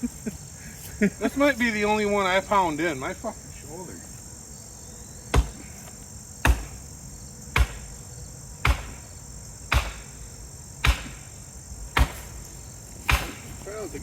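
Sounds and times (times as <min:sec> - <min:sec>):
crickets chirring: 0:00.0 - 0:14.0
heavy hammer strikes: 0:10.8 - 0:11.2, 0:13.1 - 0:13.4.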